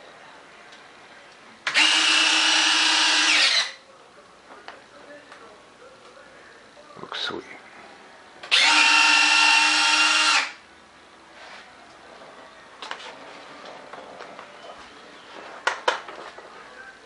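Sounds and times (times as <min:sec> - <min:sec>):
small electric motor whining: 0:01.7 - 0:03.8, 0:08.5 - 0:10.6.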